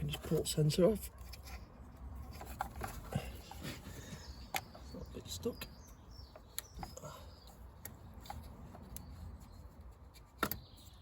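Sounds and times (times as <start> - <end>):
faint clicks and handling: 5.6 - 11.0.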